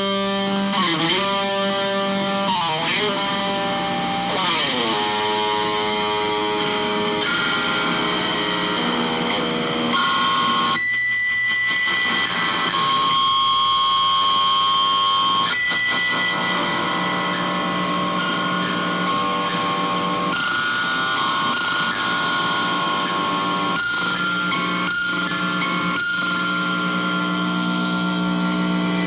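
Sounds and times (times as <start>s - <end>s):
distorted electric guitar: 0.0s - 29.0s.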